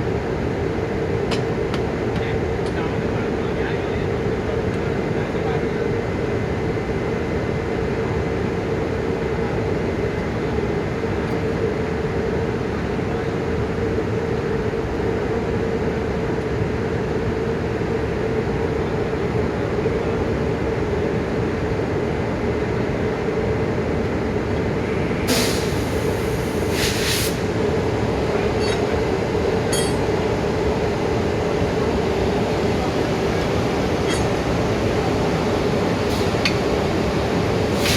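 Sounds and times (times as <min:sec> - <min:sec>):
locomotive engine humming: 0:00.0 - 0:37.9
air hissing: 0:25.3 - 0:27.5, 0:37.7 - 0:37.9.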